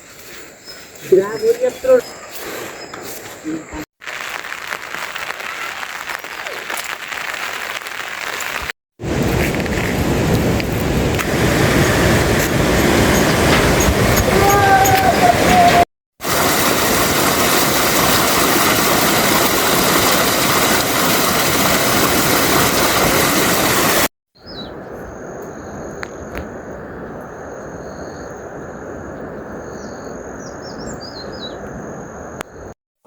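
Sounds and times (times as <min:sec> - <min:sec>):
small birds chirping: 0:00.2 - 0:03.8, 0:29.7 - 0:31.7.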